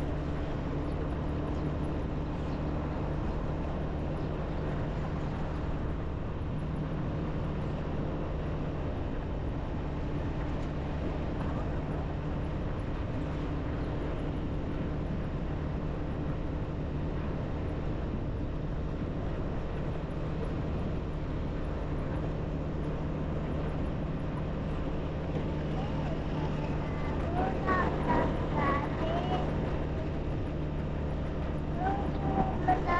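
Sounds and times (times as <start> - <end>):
road and wind noise: 0.0 - 32.9
small motorbike engine running: 25.2 - 32.9.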